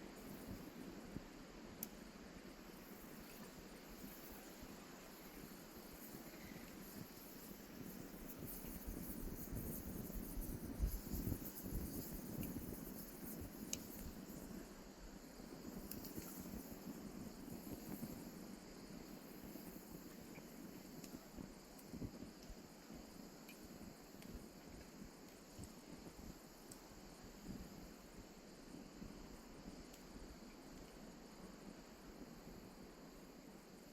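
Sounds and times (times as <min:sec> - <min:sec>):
fire crackles: 0:00.0 - 0:33.9
insects chirping: 0:00.0 - 0:33.9.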